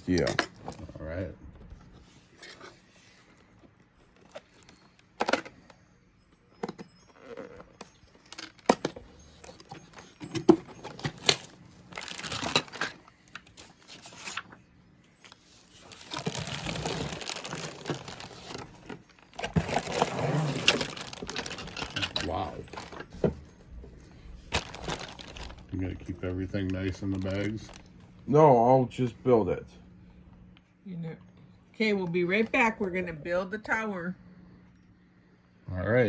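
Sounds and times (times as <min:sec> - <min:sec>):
packaging crinkling and tearing: 0:07.2 - 0:14.6, 0:15.2 - 0:28.0.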